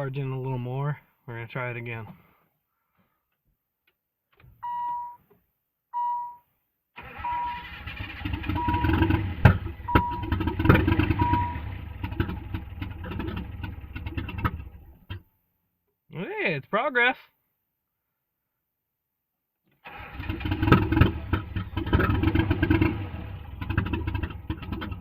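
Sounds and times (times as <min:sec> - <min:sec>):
car warning chime beeping: 0:04.6 - 0:05.2, 0:06.0 - 0:06.4, 0:07.2 - 0:07.8, 0:08.6 - 0:09.0, 0:09.8 - 0:10.4, 0:11.2 - 0:11.8
engine cranking and sputtering: 0:07.0 - 0:15.2, 0:19.8 - 0:25.0.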